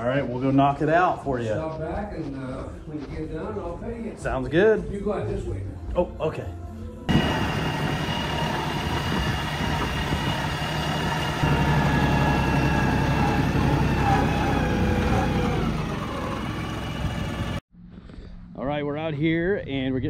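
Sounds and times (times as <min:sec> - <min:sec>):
tractor diesel engine running: 0:07.1 - 0:17.6.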